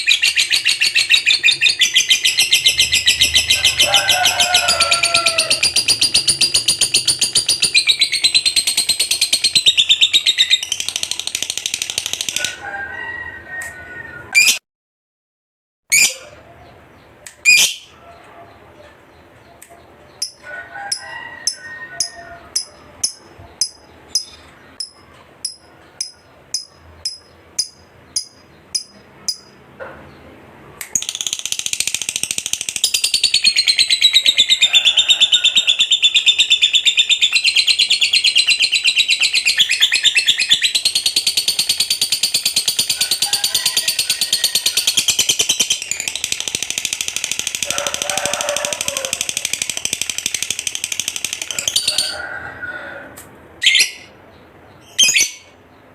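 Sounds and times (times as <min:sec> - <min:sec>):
lovebird chirping: 0:00.0 - 0:12.4, 0:15.9 - 0:18.0, 0:19.1 - 0:20.4, 0:21.4 - 0:29.6, 0:30.9 - 0:47.6, 0:53.6 - 0:55.6
lovebird chattering trill: 0:00.0 - 0:12.5, 0:17.4 - 0:17.9, 0:20.2 - 0:29.6, 0:30.9 - 0:52.1.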